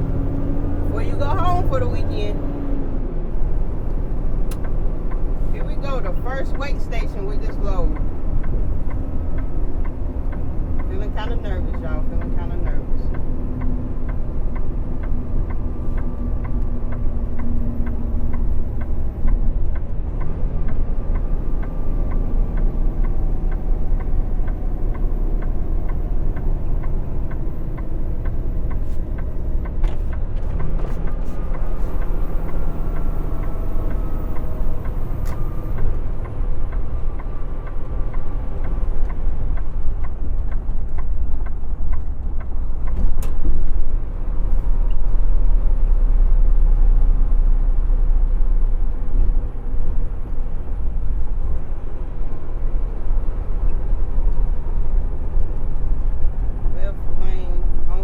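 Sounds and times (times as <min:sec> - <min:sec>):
truck diesel engine and road rumble: 0:00.0 - 0:58.0.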